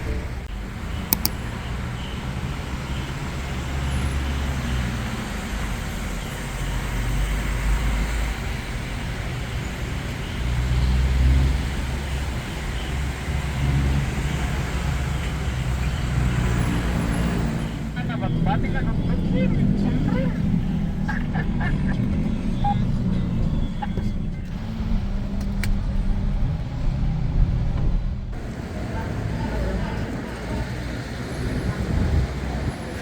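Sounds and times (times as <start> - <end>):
vehicle engine and road rumble: 0.0 - 33.0
sharp clicks: 1.0 - 1.5.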